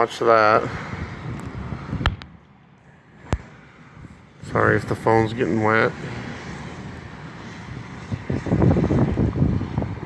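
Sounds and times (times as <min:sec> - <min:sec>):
wind on microphone: 0:00.6 - 0:02.4, 0:06.2 - 0:10.0.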